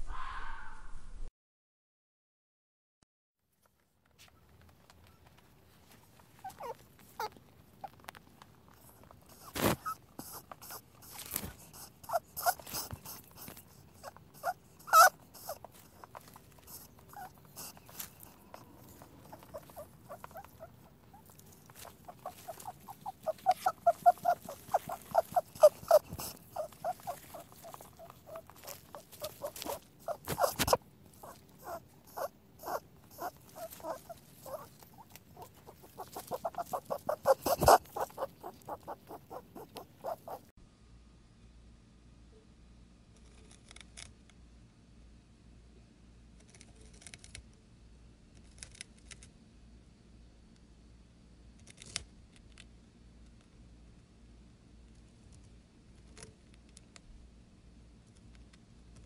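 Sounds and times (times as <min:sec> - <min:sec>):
rabbit squeaking: 0:06.1 - 0:08.2, 0:08.8 - 0:40.5.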